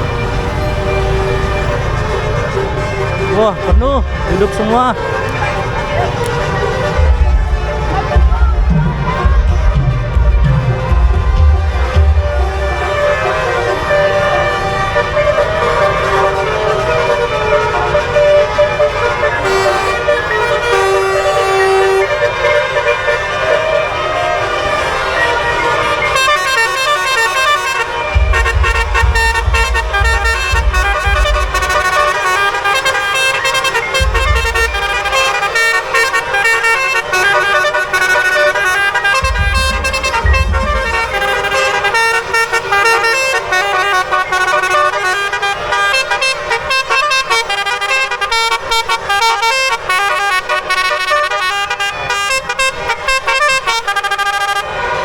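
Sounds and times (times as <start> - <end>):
multi-tone musical air horns: 0.0 - 55.0
deep rumble: 6.8 - 13.0, 28.1 - 32.1, 39.1 - 41.8.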